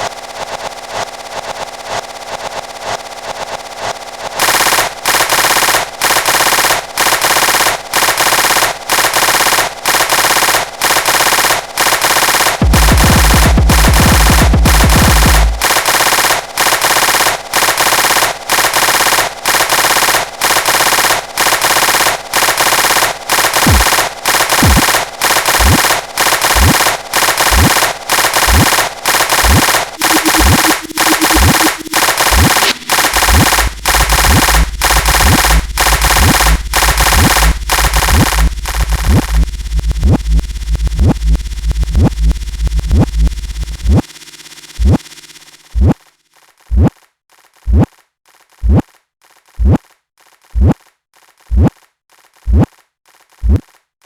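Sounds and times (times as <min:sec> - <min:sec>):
pulsing harsh noise music: 0:04.4 - 0:45.9
falling bass sweeps: 0:30.0 - 0:43.9
deep low drone: 0:33.6 - 0:43.9.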